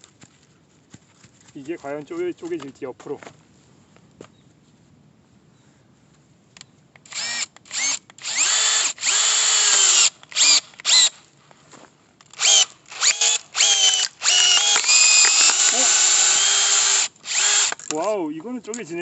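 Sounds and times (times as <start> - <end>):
power drill boring into log: 7.1 - 11.2, 12.3 - 18.0.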